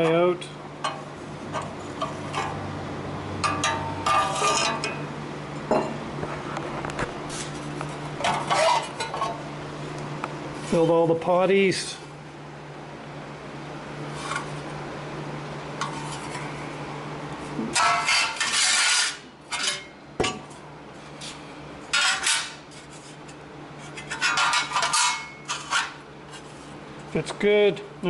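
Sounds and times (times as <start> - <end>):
steady low hum: 0.0 - 28.0
sheet metal pieces rattling: 24.1 - 26.0.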